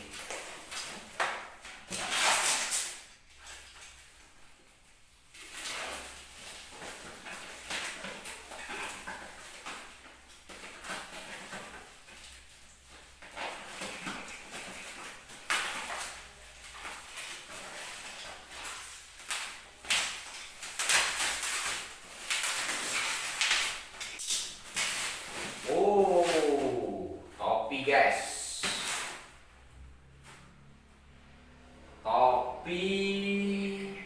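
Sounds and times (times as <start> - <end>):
cardboard rustling and tearing: 0.0 - 4.2, 5.3 - 27.4
packaging clattering: 5.4 - 26.4.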